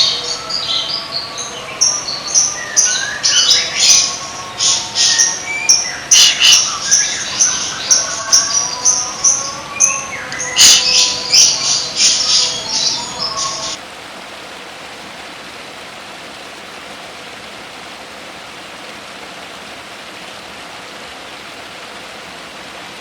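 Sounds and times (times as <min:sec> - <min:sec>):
songbird chattering and whistling: 0:00.0 - 0:13.8.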